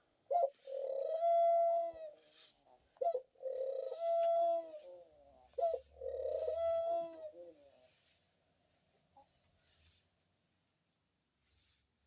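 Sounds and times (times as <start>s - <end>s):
dove cooing: 0.0s - 7.9s.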